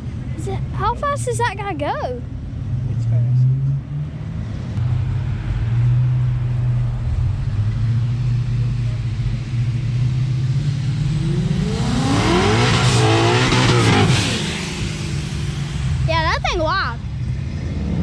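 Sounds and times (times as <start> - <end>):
car engine revving: 2.4 - 18.0
car engine idling: 4.3 - 17.6.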